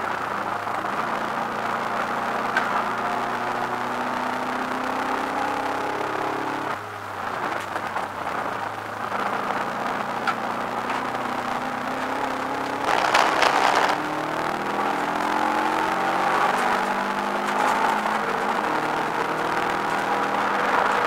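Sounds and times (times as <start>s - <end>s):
car engine revving in cabin: 0.0s - 7.6s, 8.3s - 21.0s
loud rushing noise: 12.1s - 21.0s.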